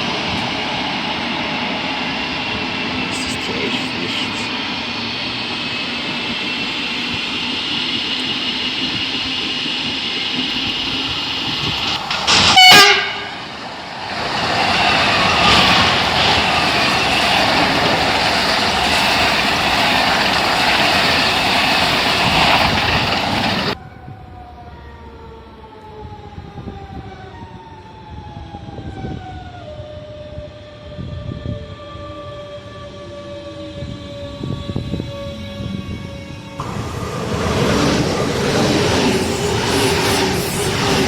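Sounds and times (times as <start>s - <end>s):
train running on rails: 0.0s - 41.0s
train horn blast: 12.3s - 13.6s.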